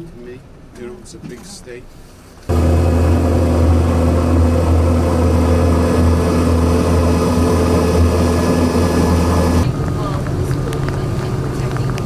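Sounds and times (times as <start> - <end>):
vehicle engine running: 2.5 - 9.8.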